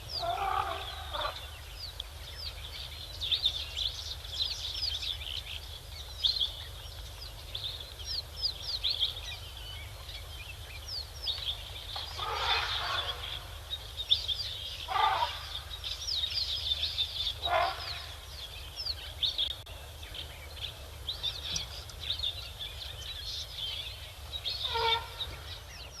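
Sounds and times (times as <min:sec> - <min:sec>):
small birds chirping: 0:00.0 - 0:26.0
coarse fowl-like bird call: 0:00.2 - 0:01.4, 0:12.1 - 0:13.5, 0:14.9 - 0:15.6, 0:17.4 - 0:18.2, 0:24.6 - 0:25.4.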